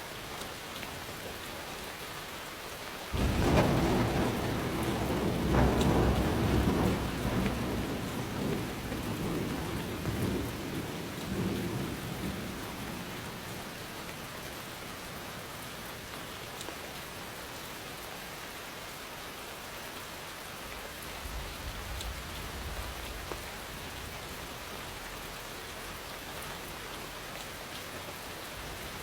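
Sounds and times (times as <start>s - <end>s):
steady rain falling: 0.0s - 29.0s
thunder rumbling: 3.1s - 14.3s.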